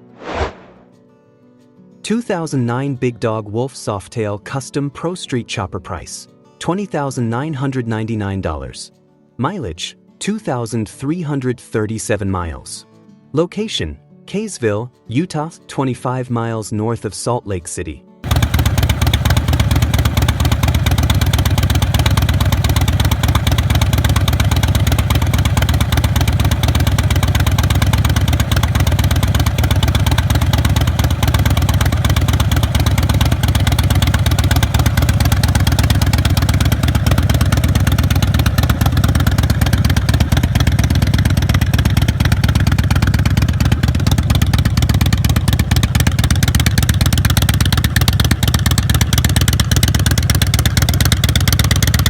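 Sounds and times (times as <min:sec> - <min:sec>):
motorcycle engine idling: 0:18.2 - 0:52.0.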